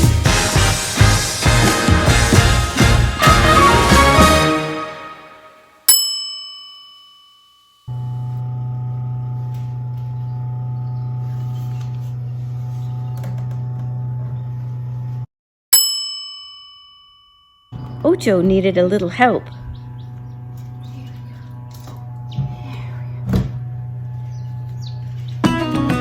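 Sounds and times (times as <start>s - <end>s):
bell-like ding: 5.9s - 8.0s, 15.8s - 18.0s
steady low hum: 17.8s - 25.4s.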